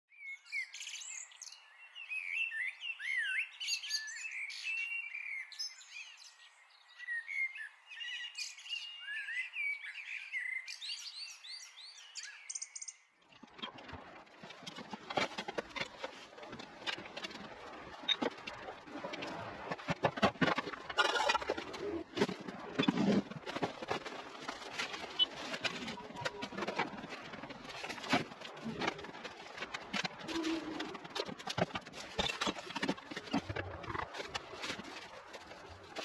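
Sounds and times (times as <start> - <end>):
birds chirping and whistling: 0.2 - 13.1.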